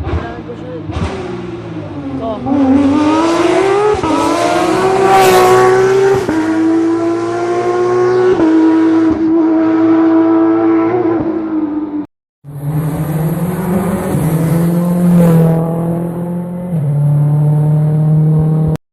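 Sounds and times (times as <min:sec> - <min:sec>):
rally car engine at high revs: 0:00.0 - 0:18.8
tyre and road noise: 0:00.0 - 0:18.8.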